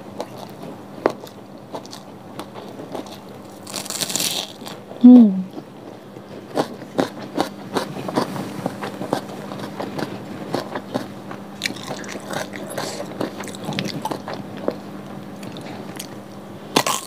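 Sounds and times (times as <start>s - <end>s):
chewing with moist crunches: 0.0s - 17.0s
person humming mm: 5.0s - 5.6s.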